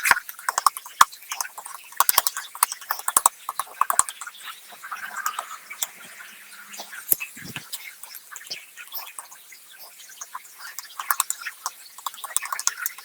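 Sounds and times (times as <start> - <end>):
sharp clicks and taps: 10.8 - 13.0.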